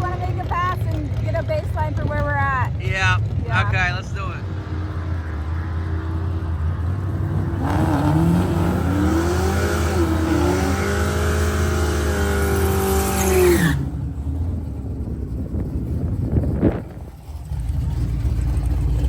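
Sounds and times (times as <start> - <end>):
drag racing car accelerating: 0.0 - 19.0
low rumble: 13.8 - 19.0.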